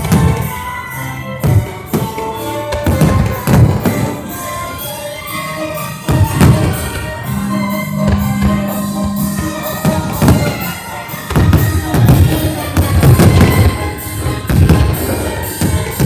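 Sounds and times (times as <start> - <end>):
loud music: 0.0 - 16.0
fireworks booming: 6.1 - 16.0.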